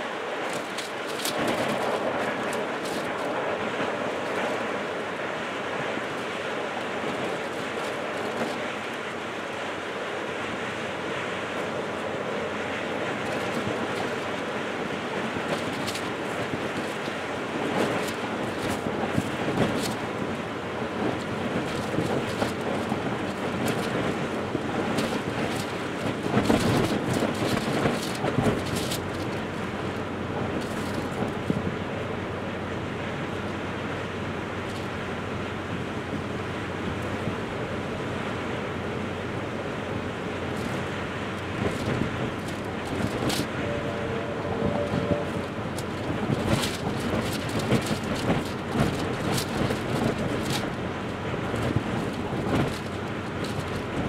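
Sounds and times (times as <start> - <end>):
train rumbling past: 0.0 - 54.0
sharp train clanks: 40.4 - 50.6
brief tone: 43.5 - 45.5.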